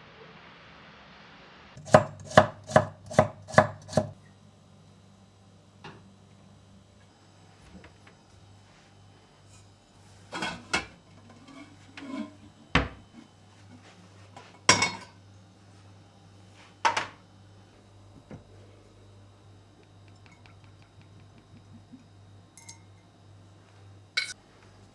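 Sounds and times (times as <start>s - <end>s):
low steady hum: 1.7s - 24.9s
dishes and cutlery clinking: 14.7s - 15.2s, 24.2s - 24.4s.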